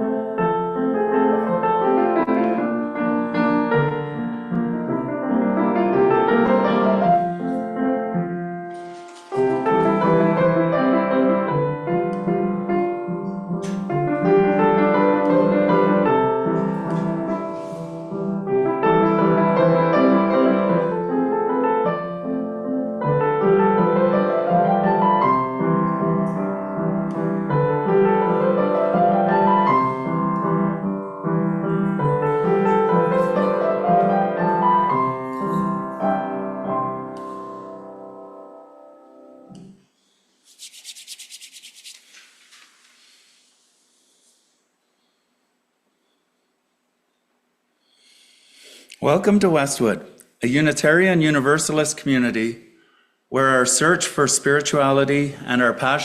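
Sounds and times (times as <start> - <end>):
solo piano arpeggios: 0.0 - 8.7, 9.3 - 39.5.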